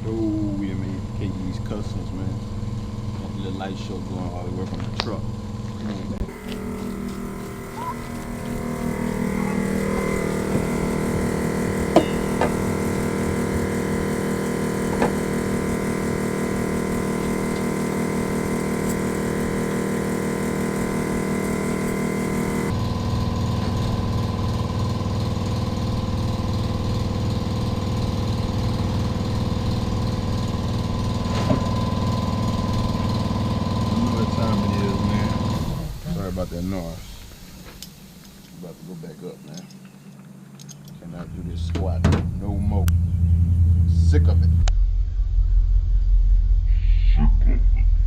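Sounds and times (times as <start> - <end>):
machine running with even pulsing: 6.2 - 38.2.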